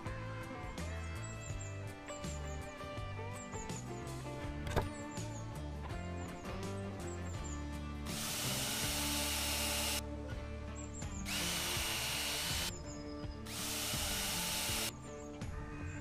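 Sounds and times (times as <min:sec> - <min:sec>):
background music: 0:00.0 - 0:16.0
power tool motor whining: 0:08.1 - 0:10.0, 0:11.3 - 0:12.7, 0:13.5 - 0:14.9.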